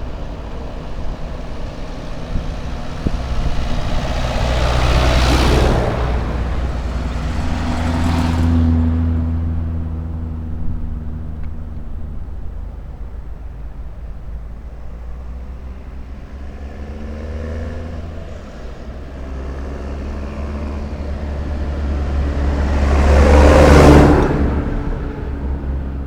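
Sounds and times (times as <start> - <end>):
steady low rumble: 0.0 - 16.6
vehicle engine passing by: 0.0 - 26.0.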